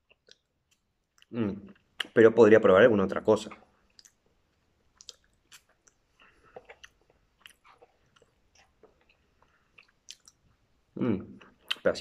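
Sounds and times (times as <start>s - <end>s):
person chewing noodles: 3.5s - 11.9s
small mouth clicks: 5.0s - 10.6s, 11.3s - 11.9s.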